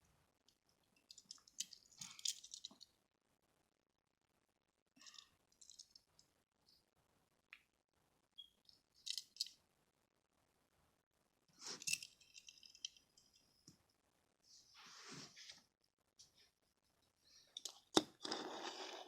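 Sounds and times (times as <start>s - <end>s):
small hard objects clicking and rattling: 1.0s - 2.8s, 5.0s - 6.2s, 9.0s - 9.6s, 11.8s - 13.3s.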